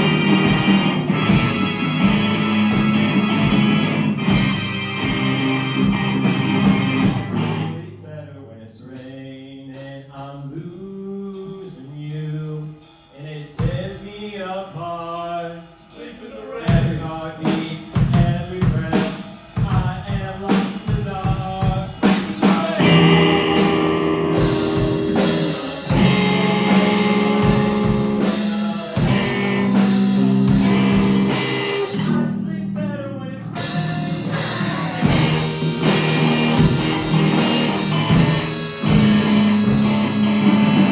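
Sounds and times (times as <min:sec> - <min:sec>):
live rock band playing loudly: 0:00.0 - 0:07.8, 0:16.6 - 0:32.8, 0:33.4 - 0:40.9
melodic electric guitar: 0:00.0 - 0:07.8, 0:22.8 - 0:40.9.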